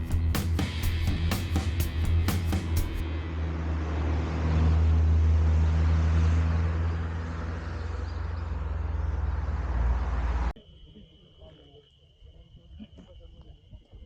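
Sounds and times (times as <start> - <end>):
car engine driving past: 2.6 - 10.6.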